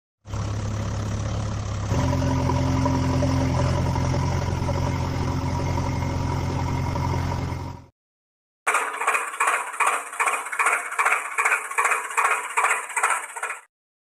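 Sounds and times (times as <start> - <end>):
engine-like hum: 0.2 - 7.9, 8.7 - 13.7.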